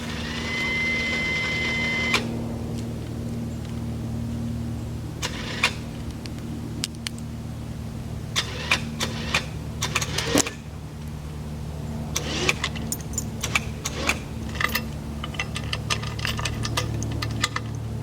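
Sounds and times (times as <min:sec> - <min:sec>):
vehicle engine running: 0:00.0 - 0:18.0
metallic clinks and rattles: 0:12.4 - 0:17.9.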